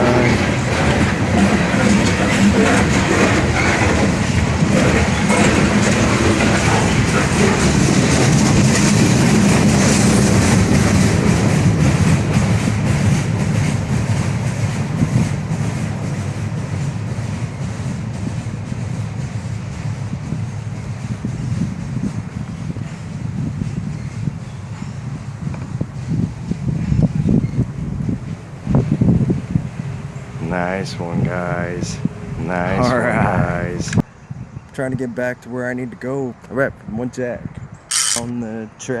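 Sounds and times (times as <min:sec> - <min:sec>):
freight train rumbling past: 0:00.0 - 0:36.8
wheels clicking over rail joints: 0:00.2 - 0:13.7.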